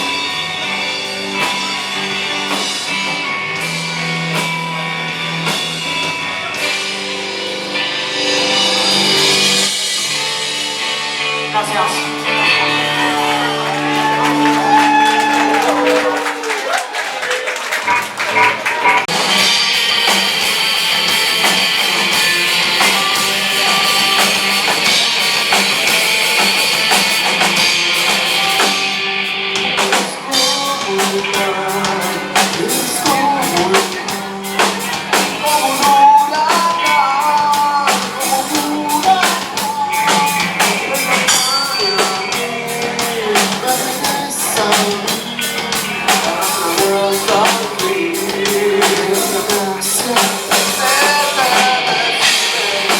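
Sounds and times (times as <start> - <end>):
live rock band playing: 0.0 - 52.9
person singing: 11.6 - 16.4, 22.1 - 25.6, 28.3 - 52.9
drum beat: 11.6 - 52.9.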